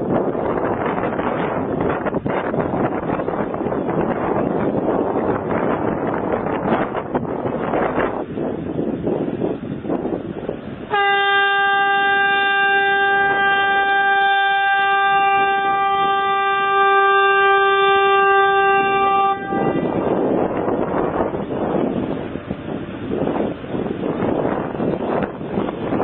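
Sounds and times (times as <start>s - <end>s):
wind noise on microphone: 0.0s - 26.0s
ship's horn blast: 10.9s - 20.6s.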